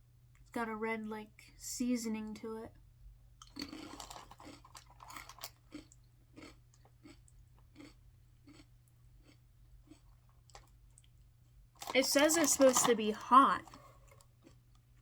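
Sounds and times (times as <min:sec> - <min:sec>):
person chewing crunchy snack: 0:03.4 - 0:12.8, 0:13.6 - 0:15.0.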